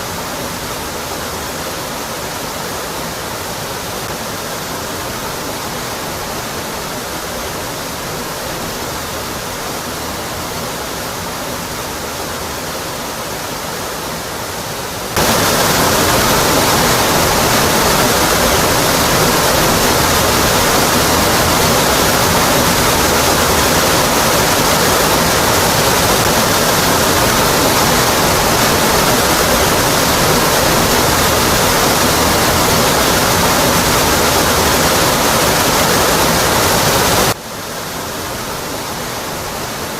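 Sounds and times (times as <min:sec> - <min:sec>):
waterfall rushing onto rock: 0:15.1 - 0:39.9.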